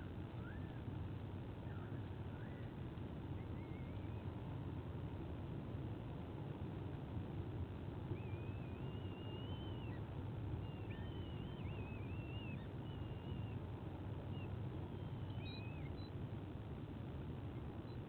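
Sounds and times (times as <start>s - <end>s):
low background rumble: 0.0s - 18.0s
eagle chicks whistling peeps: 3.4s - 4.4s, 8.1s - 16.2s.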